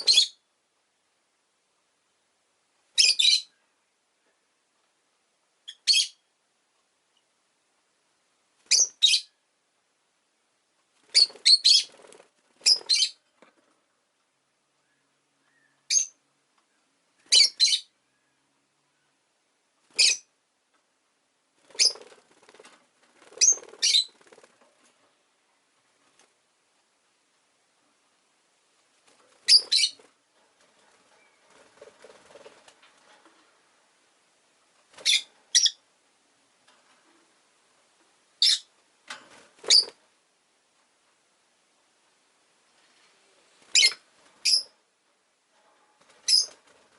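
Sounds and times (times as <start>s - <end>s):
bird high-pitched chirps: 0.0s - 0.4s, 3.0s - 3.6s, 5.7s - 6.2s, 8.7s - 9.3s, 11.1s - 11.9s, 12.6s - 13.2s, 14.8s - 16.2s, 17.2s - 18.3s, 20.0s - 20.3s, 23.4s - 24.2s, 29.4s - 30.0s, 35.0s - 35.8s, 38.4s - 38.7s, 39.7s - 40.0s, 43.7s - 44.7s, 46.2s - 46.6s
soft low bird chatter: 10.7s - 20.9s, 21.6s - 27.1s, 27.7s - 40.1s, 42.1s - 46.9s.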